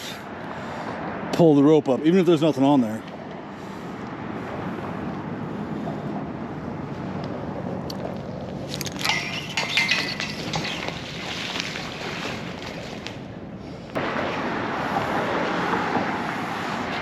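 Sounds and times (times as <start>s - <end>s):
metal clinking and clattering: 8.7s - 11.0s.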